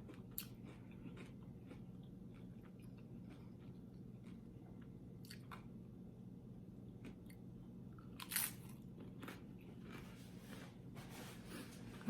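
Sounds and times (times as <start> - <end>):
crunching and chewing: 0.0 - 5.8, 6.9 - 10.3.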